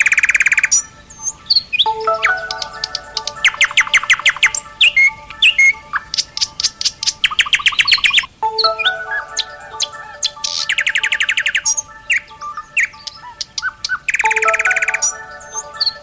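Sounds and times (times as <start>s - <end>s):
birdsong chirps trilling: 0.0s - 16.0s
chime-like alarm tones: 1.8s - 6.0s, 8.4s - 13.1s, 14.2s - 16.0s.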